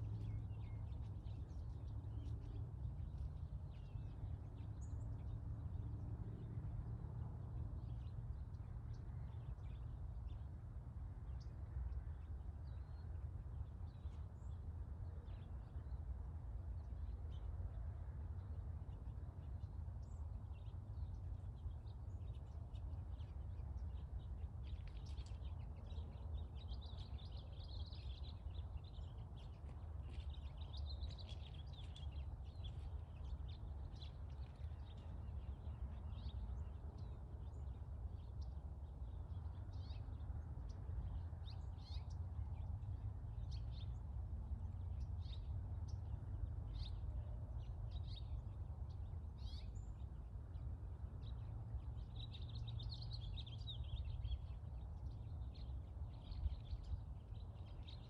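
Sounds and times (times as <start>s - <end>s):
small birds chirping: 0.0s - 5.8s, 18.9s - 58.0s
low outdoor rumble: 0.0s - 58.0s.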